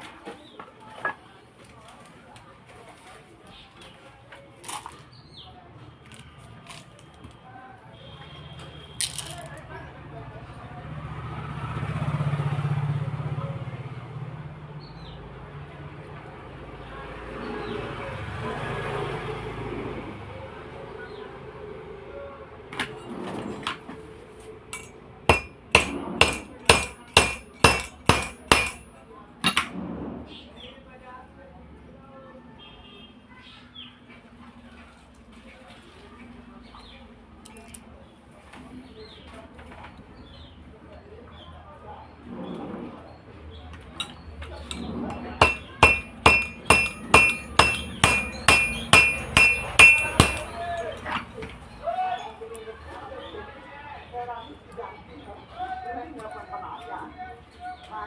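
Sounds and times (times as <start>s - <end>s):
hammer striking metal: 24.8s - 29.7s, 44.0s - 51.4s.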